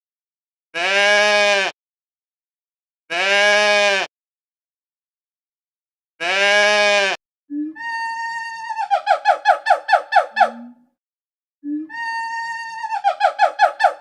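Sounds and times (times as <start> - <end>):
farm animal bleating: 0.8 - 1.8, 3.1 - 4.1, 6.2 - 7.2
higher-pitched animal call: 6.2 - 10.8, 11.7 - 14.0.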